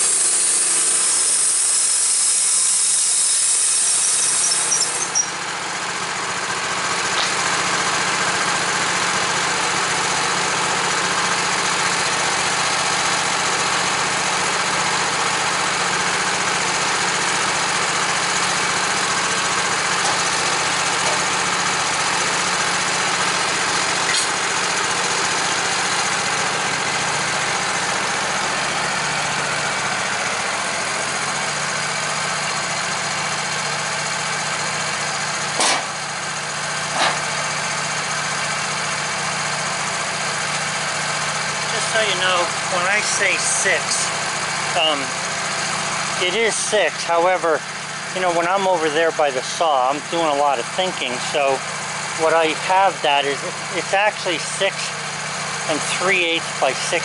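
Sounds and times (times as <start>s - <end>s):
saw blade hissing in wood: 0.0s - 5.4s, 36.9s - 37.3s
sawmill engine idling: 0.0s - 57.0s.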